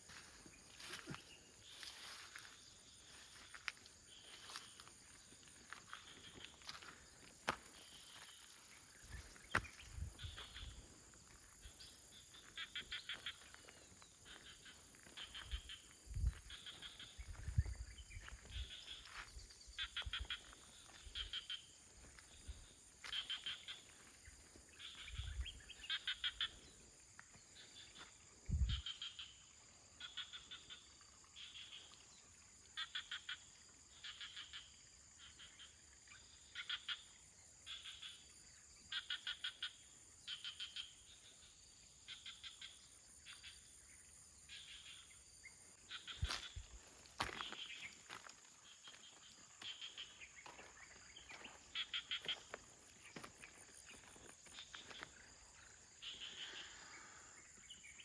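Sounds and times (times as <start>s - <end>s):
rapid-pulsed animal chirps: 11.7s - 17.8s, 19.8s - 21.8s, 24.8s - 26.7s, 28.6s - 31.9s, 32.8s - 35.7s, 38.9s - 41.2s, 51.6s - 52.6s.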